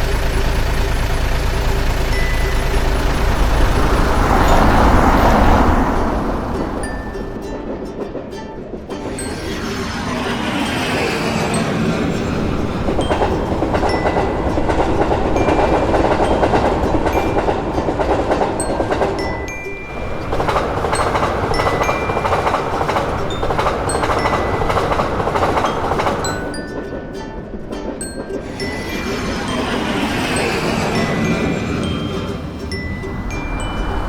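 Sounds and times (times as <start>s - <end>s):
train rumble and wheel clatter: 0.0s - 34.0s
short high dings: 0.3s - 7.6s.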